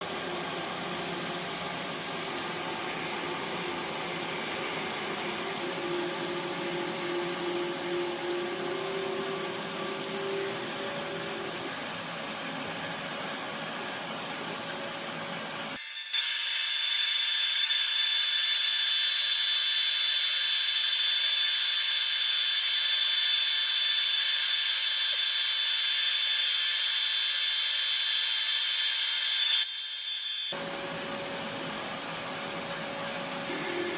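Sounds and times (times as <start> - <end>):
high thin whine: 0.0 - 17.0
woodworking power tools: 0.0 - 33.9.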